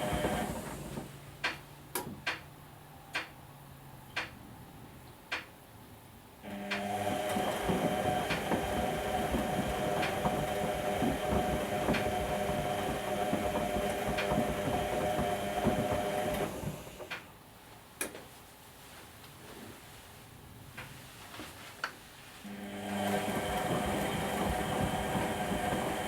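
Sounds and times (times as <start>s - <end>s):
washing machine drum turning: 0.0s - 2.4s, 6.5s - 17.2s, 22.6s - 26.0s.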